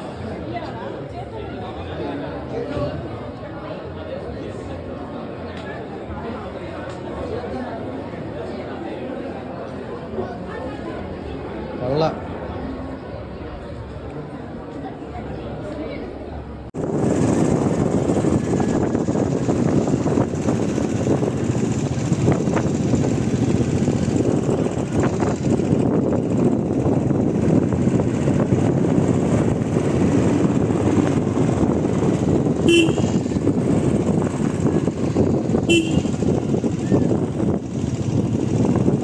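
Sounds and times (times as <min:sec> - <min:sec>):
vehicle road noise: 0:16.8 - 0:39.0
short horn toot: 0:32.6 - 0:33.4, 0:35.6 - 0:36.4.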